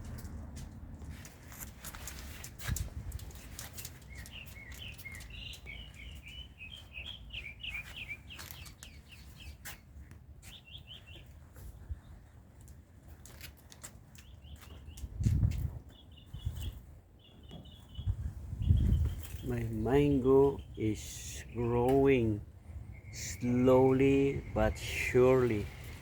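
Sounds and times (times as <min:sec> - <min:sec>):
small bird chirping: 0:03.2 - 0:12.2, 0:14.1 - 0:19.5, 0:22.8 - 0:26.0
wind on microphone: 0:15.0 - 0:16.9, 0:18.0 - 0:19.7.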